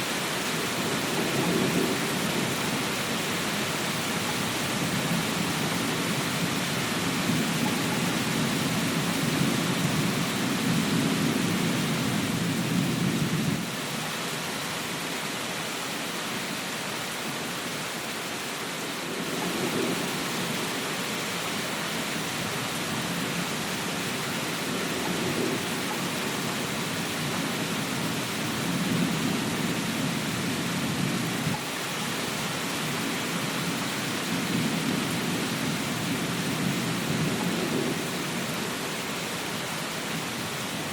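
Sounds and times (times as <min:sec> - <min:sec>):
steady rain hiss: 0:00.0 - 0:40.9
low rolling thunder: 0:00.8 - 0:03.0, 0:04.4 - 0:13.7, 0:19.0 - 0:20.8, 0:22.3 - 0:31.6, 0:34.1 - 0:38.7.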